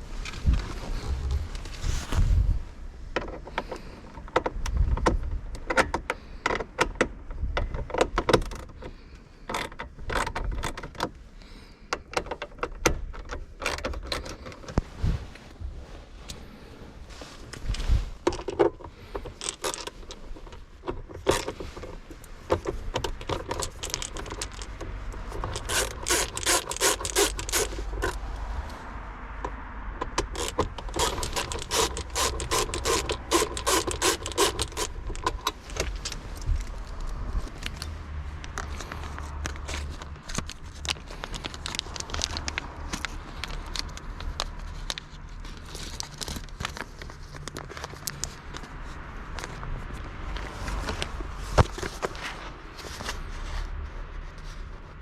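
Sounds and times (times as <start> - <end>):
metal scraping: 30.1 - 37.6.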